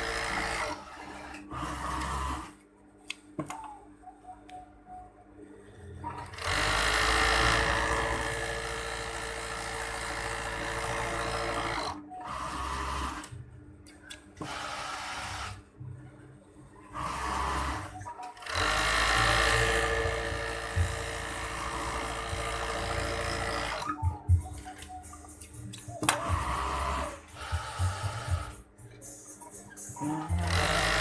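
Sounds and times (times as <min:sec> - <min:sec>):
sewing machine stitching: 0:06.2 - 0:13.3, 0:17.0 - 0:23.8, 0:30.2 - 0:31.0.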